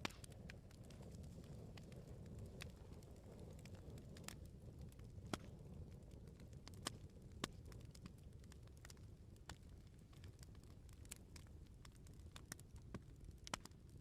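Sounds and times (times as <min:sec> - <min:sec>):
firewood crackling and popping: 0:00.0 - 0:14.0
low rumble of flames: 0:00.0 - 0:14.0.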